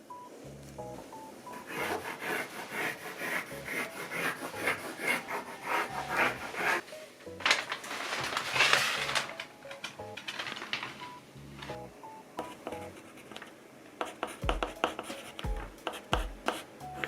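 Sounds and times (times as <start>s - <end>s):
rasping scraping strokes: 1.6s - 6.8s.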